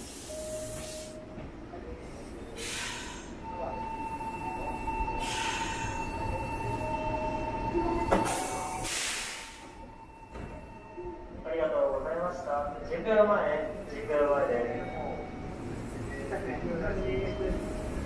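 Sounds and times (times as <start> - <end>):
electric train high whine: 0.1 - 2.4
air hisses: 8.3 - 9.7.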